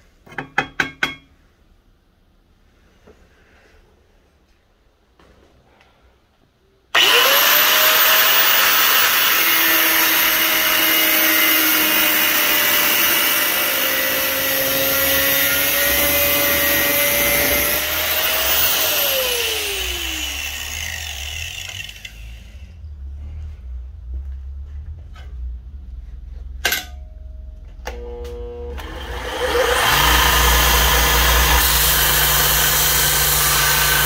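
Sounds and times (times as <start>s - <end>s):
angle grinder cutting steel: 7.0s - 22.8s, 28.7s - 34.0s.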